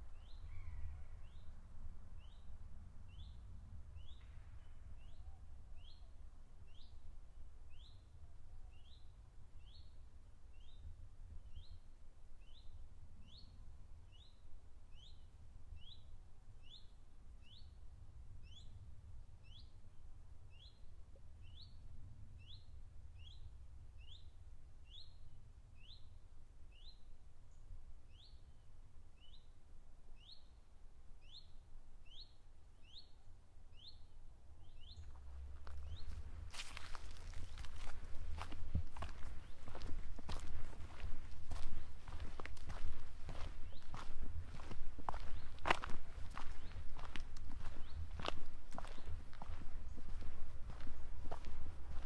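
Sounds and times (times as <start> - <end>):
faint low rumble: 34.4 - 52.0.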